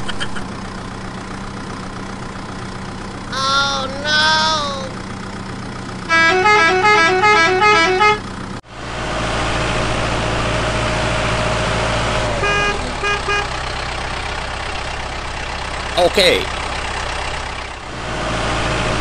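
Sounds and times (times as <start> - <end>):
vehicle engine running: 0.0 - 6.2
vehicle horn playing a tune: 6.1 - 8.2.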